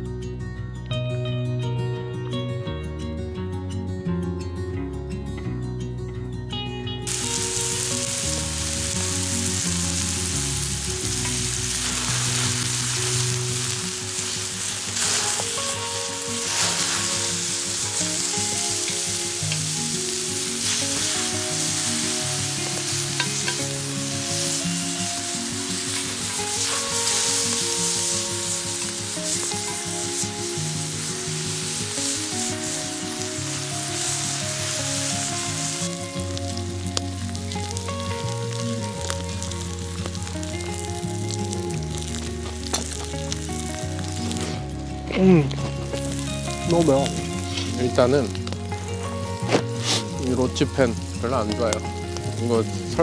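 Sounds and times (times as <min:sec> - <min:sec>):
scraping and stirring in a pan: 0:07.1 - 0:41.3
food sizzling in a skillet: 0:07.1 - 0:53.0.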